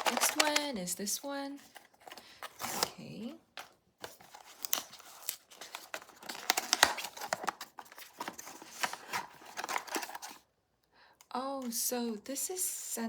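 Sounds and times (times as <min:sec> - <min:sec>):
packaging crinkling and tearing: 0:00.0 - 0:00.9, 0:01.6 - 0:10.4.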